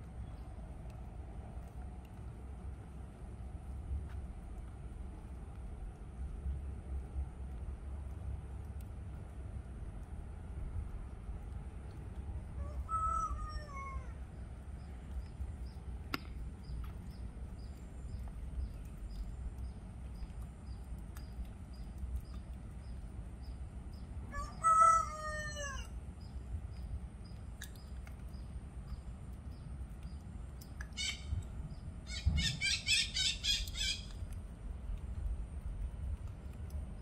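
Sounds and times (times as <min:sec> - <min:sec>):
faint regular ticking: 0:14.2 - 0:24.2, 0:26.2 - 0:31.9, 0:33.6 - 0:37.0
birds calling: 0:30.8 - 0:34.3.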